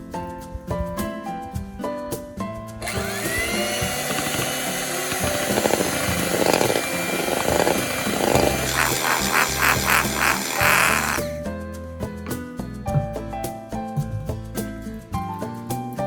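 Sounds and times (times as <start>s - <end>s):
whisk beating in a mixing bowl: 2.8s - 11.4s.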